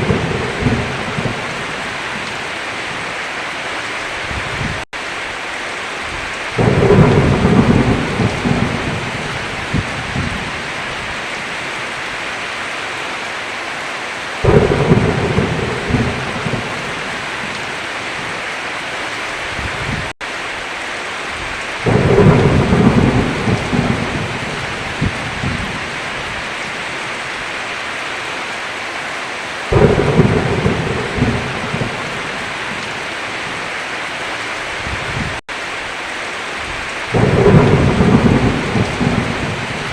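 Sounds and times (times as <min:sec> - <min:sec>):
thunder rumbling: 0:00.0 - 0:03.0, 0:06.1 - 0:11.6, 0:14.4 - 0:18.4, 0:21.4 - 0:26.7, 0:29.7 - 0:33.7, 0:36.6 - 0:39.9
heavy rain on a roof: 0:00.0 - 0:39.9.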